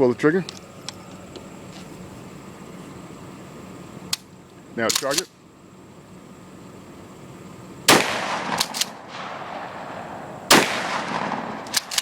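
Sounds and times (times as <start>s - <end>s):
shotgun slide clacking: 4.9s - 5.3s, 8.3s - 9.2s, 10.5s - 12.0s
shotgun shots: 7.9s - 12.0s.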